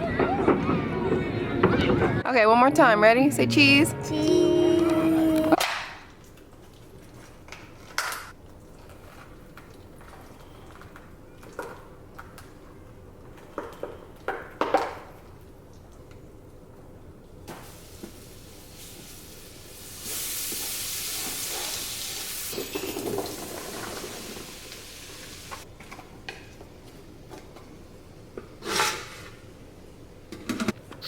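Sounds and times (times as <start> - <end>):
food sizzling in a pan: 17.5 - 22.6, 23.3 - 25.7.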